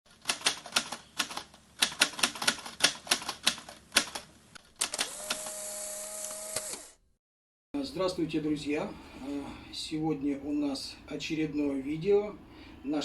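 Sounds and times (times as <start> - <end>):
typewriter keys clacking: 0.1 - 5.1.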